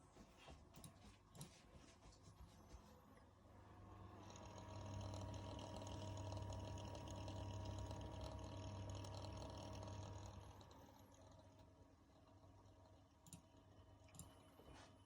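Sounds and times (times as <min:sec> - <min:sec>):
cooler pump humming: 0:03.5 - 0:14.9.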